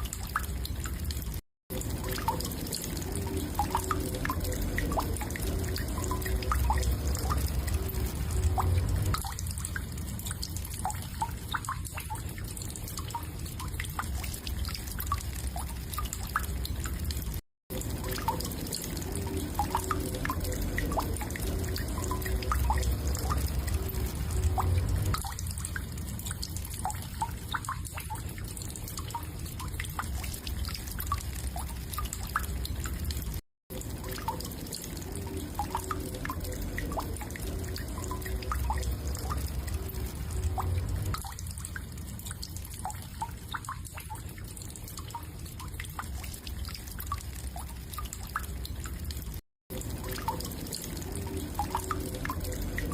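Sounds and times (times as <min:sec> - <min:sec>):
low steady hum: 0:01.7 - 0:16.9, 0:17.8 - 0:31.8, 0:33.8 - 0:43.7.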